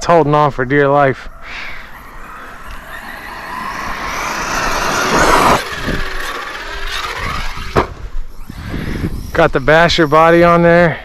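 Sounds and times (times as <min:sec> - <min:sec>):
electric motor whining: 0:01.3 - 0:10.9
sharp knocks: 0:07.8 - 0:08.0.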